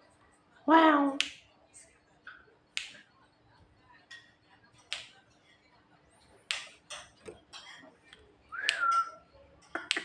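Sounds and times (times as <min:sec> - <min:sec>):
sharp clicks or snaps: 0:01.2 - 0:01.4, 0:02.8 - 0:03.0.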